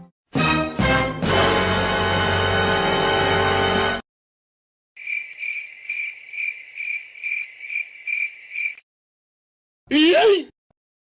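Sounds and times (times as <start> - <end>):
cricket chirping: 5.0 - 8.8.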